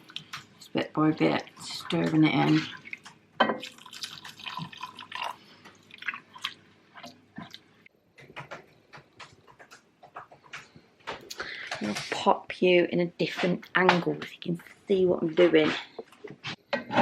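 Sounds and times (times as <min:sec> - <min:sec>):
liquid dripping and splashing: 0:00.0 - 0:07.9.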